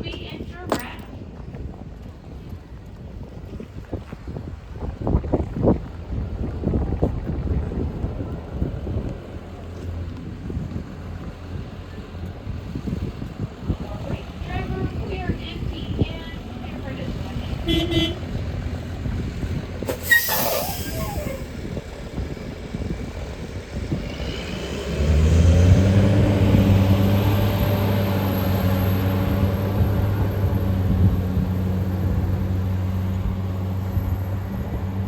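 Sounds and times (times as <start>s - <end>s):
tractor engine droning: 5.8s - 35.0s
air hiss: 19.9s - 21.5s.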